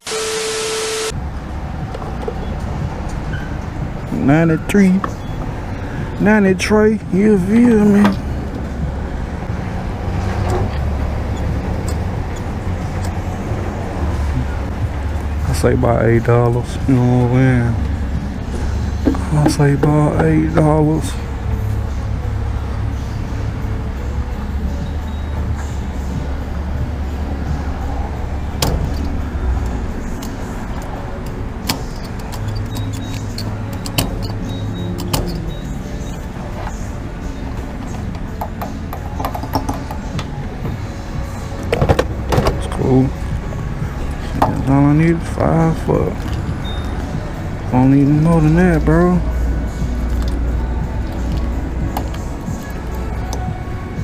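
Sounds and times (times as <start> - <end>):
low vehicle rumble: 1.1 - 54.0.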